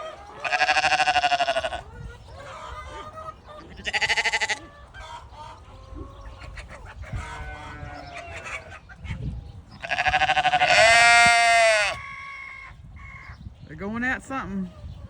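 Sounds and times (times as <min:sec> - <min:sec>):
sheep bleating: 0:00.4 - 0:01.8, 0:03.8 - 0:04.6, 0:09.8 - 0:12.0.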